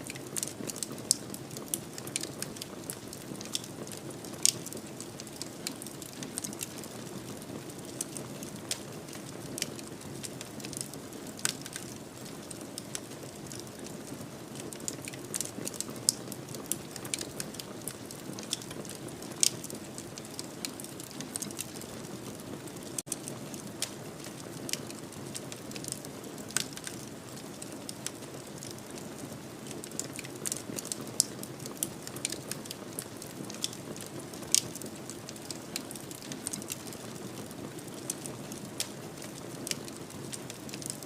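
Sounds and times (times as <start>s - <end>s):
wood fire crackling and popping: 0.0s - 41.0s.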